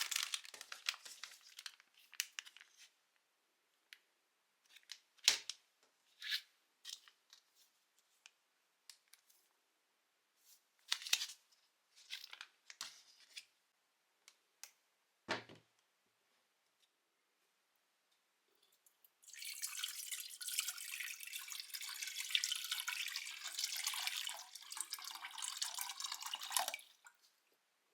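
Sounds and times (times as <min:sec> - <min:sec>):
plastic packaging crinkling: 0:00.0 - 0:02.7.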